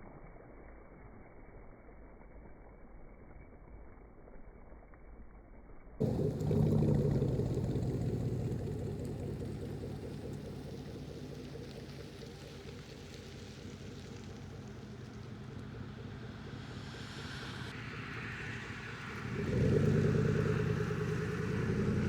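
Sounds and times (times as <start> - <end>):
loud truck exhaust: 6.0 - 14.5, 18.4 - 22.0
faint muffled low rumble: 6.0 - 22.0.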